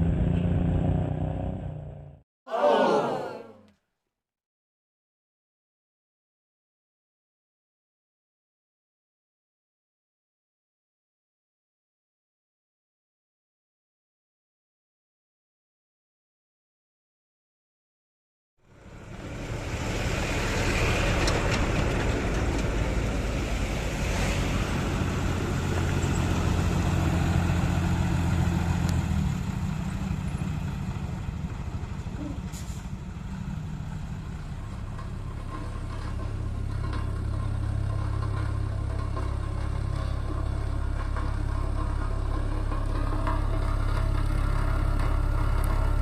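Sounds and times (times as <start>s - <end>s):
engine droning: 0.0s - 3.2s, 18.7s - 46.0s.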